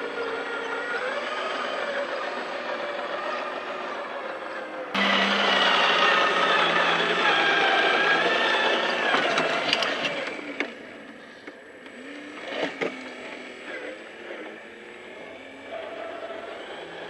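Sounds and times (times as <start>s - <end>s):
toy truck motor whining: 0.0s - 17.0s.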